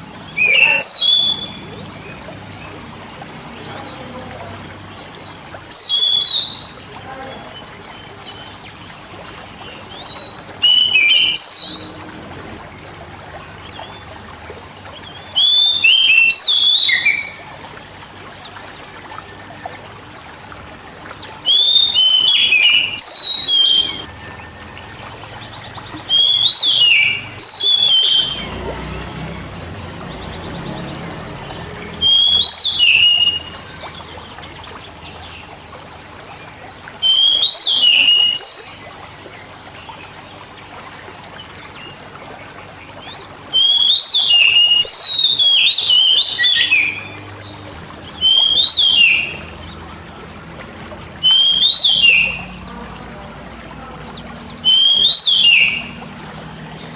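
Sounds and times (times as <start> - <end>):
magpie-robin singing whistled notes: 0.3 - 2.7, 5.2 - 8.5, 9.6 - 12.1, 15.1 - 17.5, 21.4 - 28.6, 31.7 - 34.1, 37.0 - 39.0, 43.0 - 50.2, 51.2 - 52.6, 53.8 - 56.0.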